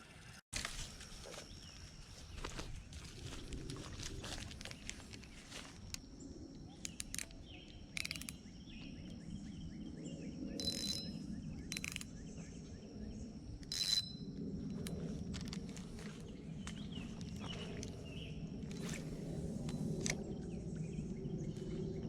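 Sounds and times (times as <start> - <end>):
low wind rumble: 1.0 - 22.0
faint birds chirping: 4.6 - 22.0
fishing reel clicking: 6.8 - 8.4, 10.6 - 12.1, 13.6 - 14.2.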